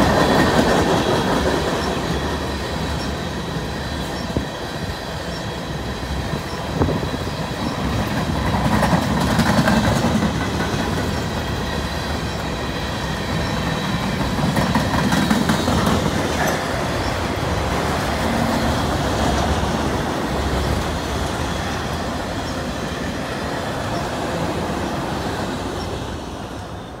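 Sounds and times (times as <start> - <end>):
freight train wheels rumbling: 0.0 - 27.0
high wheel squeal: 11.0 - 17.6.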